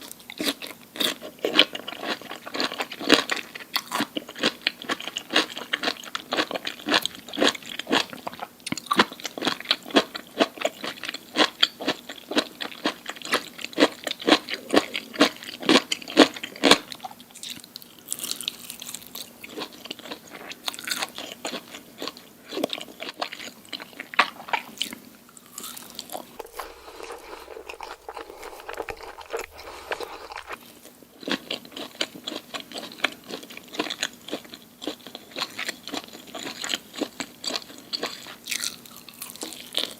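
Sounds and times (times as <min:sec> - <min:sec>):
crunchy food being chewed: 0:00.0 - 0:39.9.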